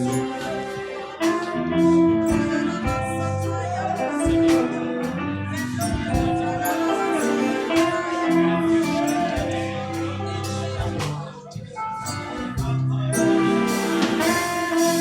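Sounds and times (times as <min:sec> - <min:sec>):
bass line: 0:00.0 - 0:15.0
live band music: 0:00.0 - 0:15.0
drum and cymbal strikes: 0:01.2 - 0:15.0.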